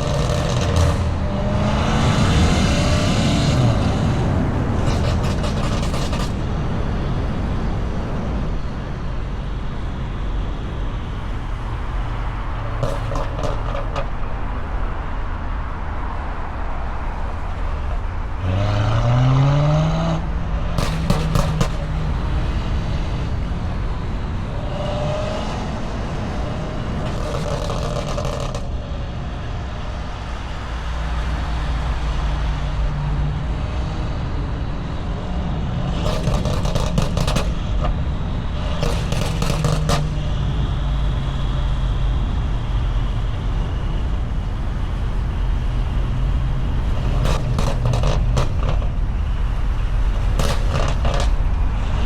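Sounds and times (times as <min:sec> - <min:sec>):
car engine revving: 0:00.0 - 0:07.5, 0:11.5 - 0:32.2, 0:35.3 - 0:43.7, 0:44.6 - 0:52.0
road noise: 0:00.0 - 0:52.0
knocking rattling bursts: 0:04.8 - 0:06.4, 0:12.6 - 0:14.2, 0:20.8 - 0:22.2, 0:27.1 - 0:28.7, 0:36.0 - 0:38.0, 0:38.7 - 0:40.2, 0:47.2 - 0:48.9, 0:50.2 - 0:51.4.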